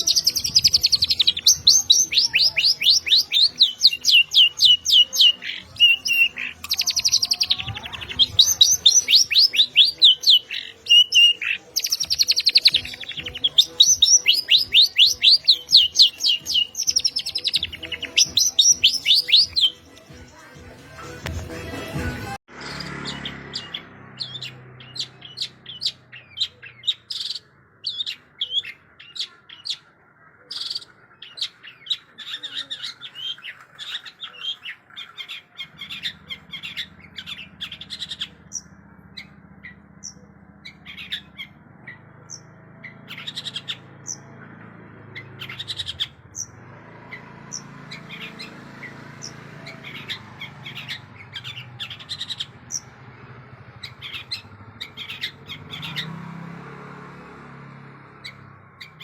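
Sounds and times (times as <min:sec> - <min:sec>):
bird singing sharp chirps: 0:00.0 - 0:20.1, 0:45.2 - 0:59.0.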